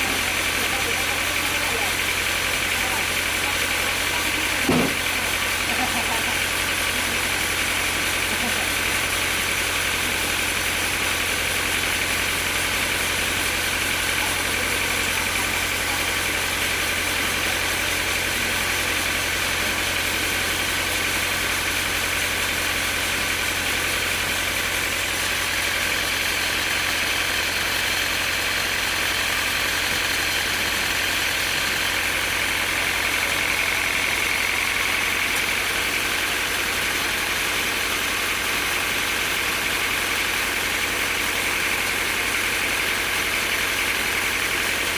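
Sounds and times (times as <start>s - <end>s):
sawmill machinery hum: 0.0s - 44.9s.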